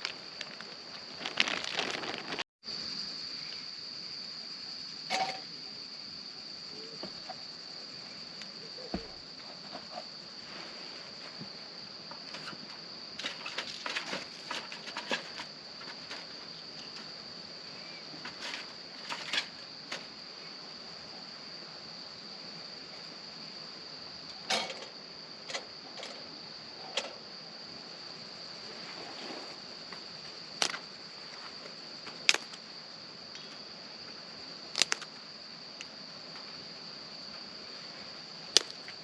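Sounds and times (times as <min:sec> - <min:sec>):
insects trilling: 0:00.0 - 0:39.0.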